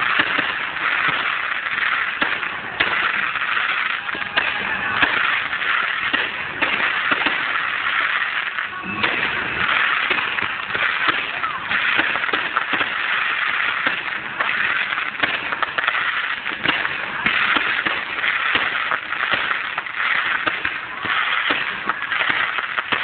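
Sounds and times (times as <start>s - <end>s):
fireworks bursting and crackling: 0.0s - 23.0s.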